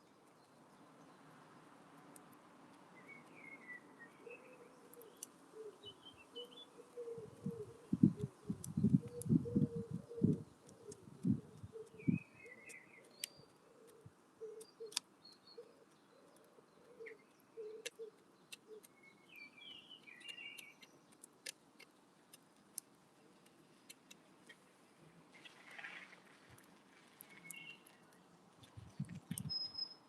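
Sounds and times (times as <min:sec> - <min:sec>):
small birds chirping: 0:00.0 - 0:30.0
sharp ticks and clicks: 0:10.3 - 0:19.1, 0:20.1 - 0:24.6.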